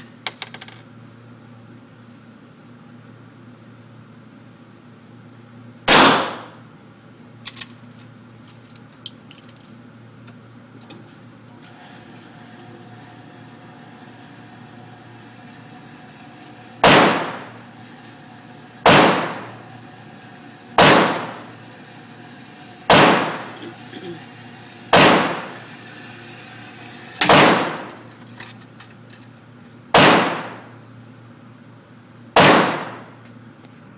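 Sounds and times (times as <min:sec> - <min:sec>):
rifle shots: 0:05.9 - 0:06.6, 0:16.8 - 0:17.6, 0:18.9 - 0:19.6, 0:20.8 - 0:21.5, 0:22.9 - 0:23.6, 0:24.9 - 0:25.6, 0:27.2 - 0:28.0, 0:29.9 - 0:30.8, 0:32.4 - 0:33.2.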